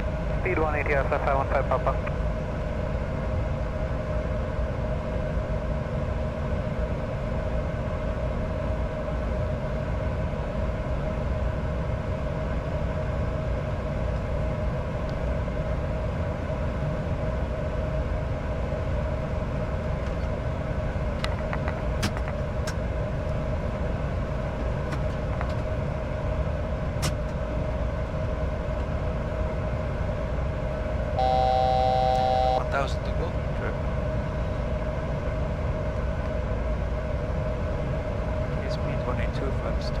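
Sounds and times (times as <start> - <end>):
aircraft engine drone: 0.0 - 40.0.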